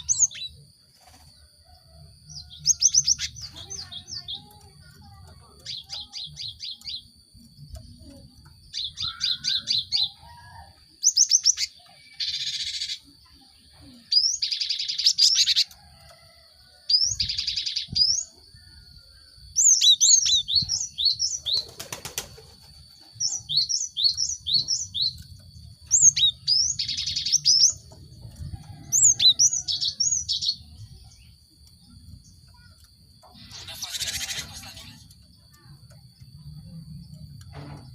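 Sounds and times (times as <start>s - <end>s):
tit singing and calling: 33.3s - 35.1s.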